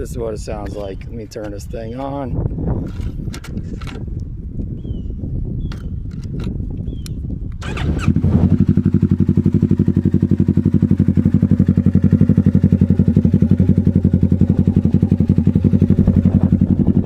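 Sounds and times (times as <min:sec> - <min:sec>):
motorcycle engine starting and idling: 0:07.6 - 0:17.0.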